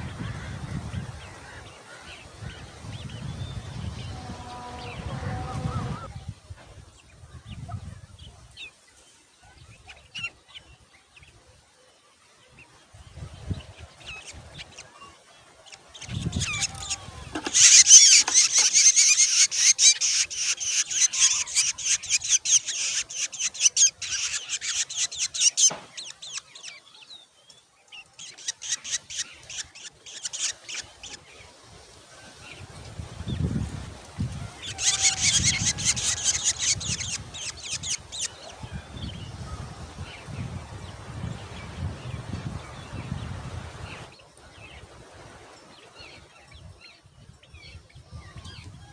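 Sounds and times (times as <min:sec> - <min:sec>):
nestlings begging calls: 0:15.6 - 0:26.8, 0:28.2 - 0:31.2, 0:34.5 - 0:39.4.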